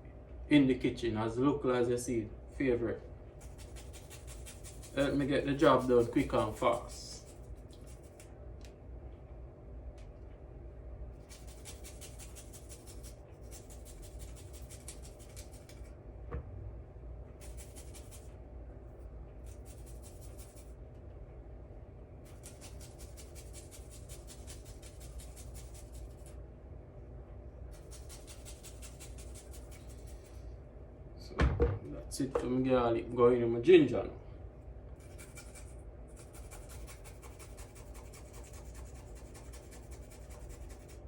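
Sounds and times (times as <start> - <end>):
grating on a hand grater: 3.4 - 8.2, 11.2 - 15.9, 17.4 - 18.3, 19.4 - 20.7, 22.3 - 26.3, 27.8 - 30.2, 35.0 - 41.0
knock: 31.4 - 32.5.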